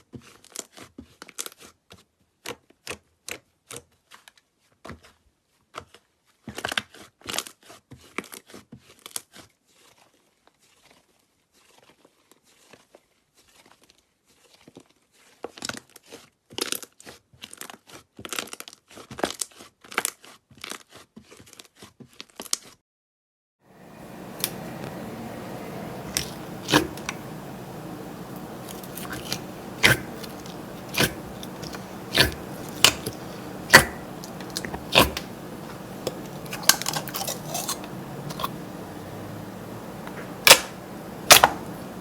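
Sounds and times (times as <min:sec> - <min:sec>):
slime crackling and popping: 0:24.0 - 0:42.0.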